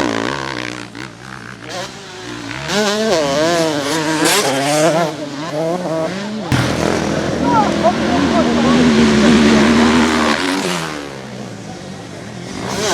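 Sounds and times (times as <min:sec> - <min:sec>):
dirt bike engines revving: 0:00.0 - 0:12.9
loud burst of noise: 0:06.5 - 0:11.0.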